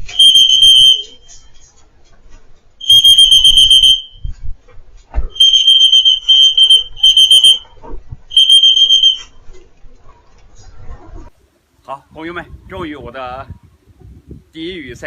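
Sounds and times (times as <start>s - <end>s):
electronic clock beeping: 0.0s - 1.3s, 2.8s - 4.1s, 5.4s - 7.6s.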